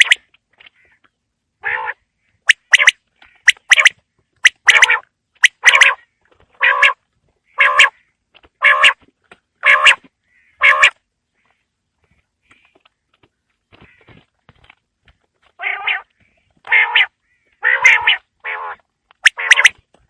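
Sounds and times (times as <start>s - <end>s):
quail calling: 0.0s - 11.6s, 15.6s - 19.8s.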